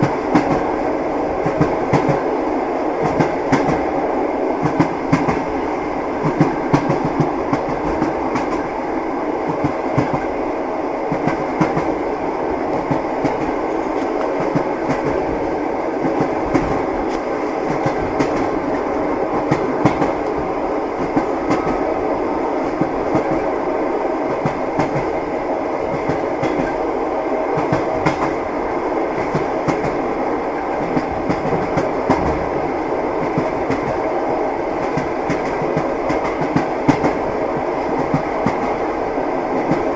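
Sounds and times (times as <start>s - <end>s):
train wheels clacking over rail joints: 12.7s - 15.3s, 15.9s - 20.4s, 25.9s - 26.8s, 27.6s - 28.4s, 30.6s - 32.5s, 34.8s - 38.8s.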